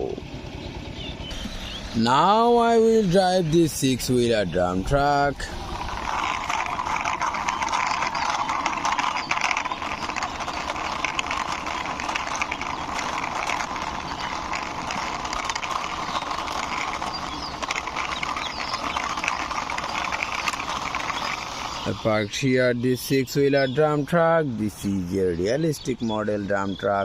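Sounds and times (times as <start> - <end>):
plastic toy wheels rattling: 1.3 - 22.4.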